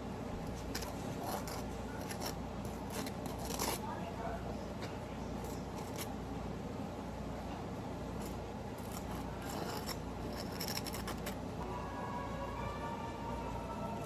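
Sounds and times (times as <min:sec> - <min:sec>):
utensils scraping and clicking: 0:00.5 - 0:03.8, 0:08.2 - 0:11.4.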